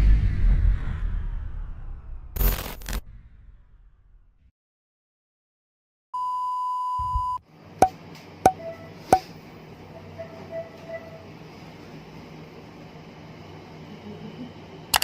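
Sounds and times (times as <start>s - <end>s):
electronic beep: 6.2s - 7.4s
faint background hum: 7.4s - 15.0s.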